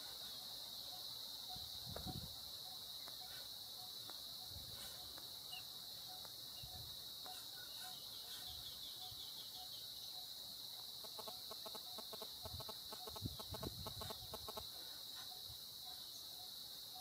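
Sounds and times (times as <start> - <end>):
bird calls: 0.0 - 17.0
bird clucking: 11.0 - 14.7.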